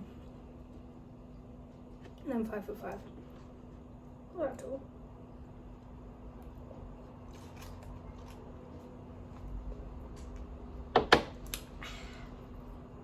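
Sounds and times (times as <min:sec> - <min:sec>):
steady low hum: 0:00.0 - 0:13.0
food packaging rustling: 0:07.2 - 0:09.4.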